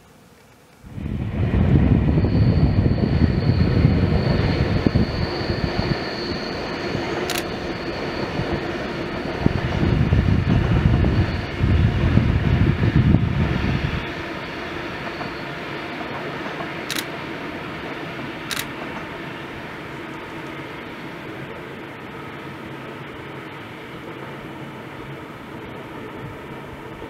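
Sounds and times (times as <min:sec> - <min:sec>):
high whine: 0:00.8 - 0:16.0
train rumbling: 0:00.8 - 0:27.0
sharp click: 0:07.3 - 0:07.5, 0:16.9 - 0:17.1, 0:18.5 - 0:18.7.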